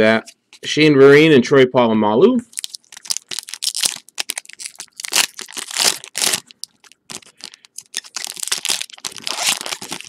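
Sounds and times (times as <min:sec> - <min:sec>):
foil wrapper crinkling: 0:02.5 - 0:10.0.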